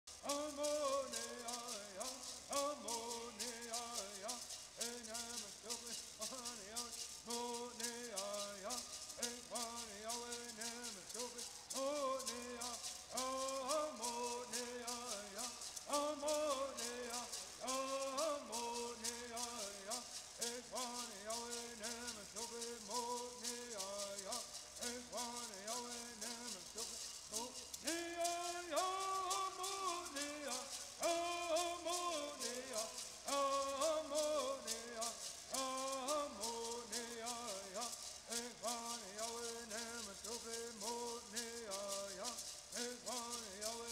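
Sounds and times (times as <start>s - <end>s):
gourd rattles shaking: 0.0s - 43.9s
voices chanting: 10.2s - 43.9s.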